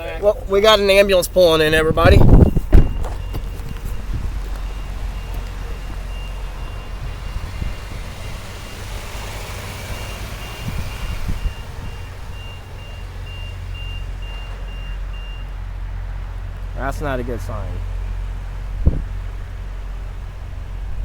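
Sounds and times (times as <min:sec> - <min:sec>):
engine running: 0:00.4 - 0:21.0
reversing alarm beeping: 0:02.1 - 0:15.6.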